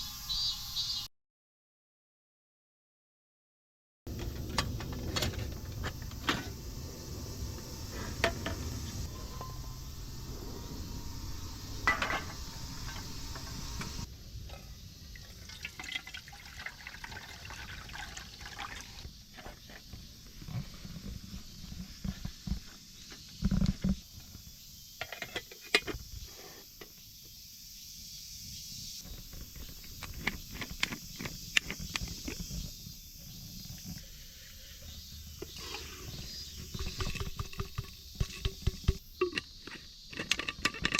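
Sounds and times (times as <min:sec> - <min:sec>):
water pouring and sloshing: 0:14.5 - 0:19.8.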